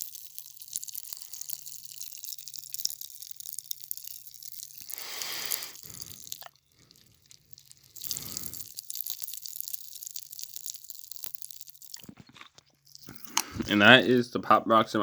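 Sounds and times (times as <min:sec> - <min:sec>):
popping candy crackling in mouth: 0:00.0 - 0:14.1
short hiss: 0:04.9 - 0:06.0.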